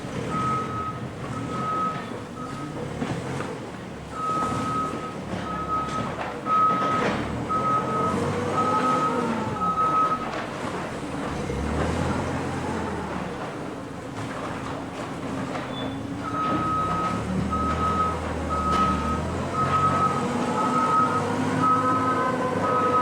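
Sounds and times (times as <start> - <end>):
vehicle engine running: 0.0 - 23.0
reversing alarm beeping: 0.2 - 2.8, 4.1 - 10.3, 15.8 - 23.0.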